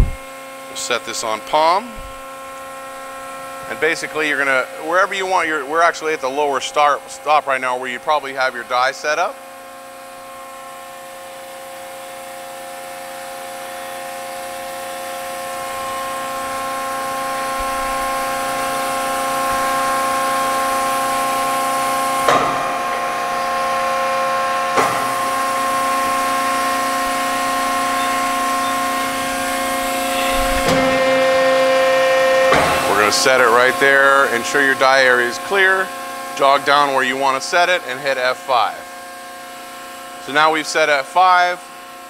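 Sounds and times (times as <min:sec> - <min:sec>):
hydraulic pump humming: 0:00.0 - 0:42.0.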